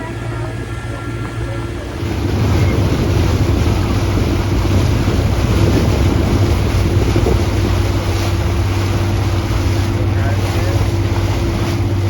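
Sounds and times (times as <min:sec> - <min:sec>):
motorboat engine drone: 0:00.0 - 0:12.0
water rushing past hull: 0:00.0 - 0:12.0
wind buffeting microphone: 0:00.0 - 0:12.0.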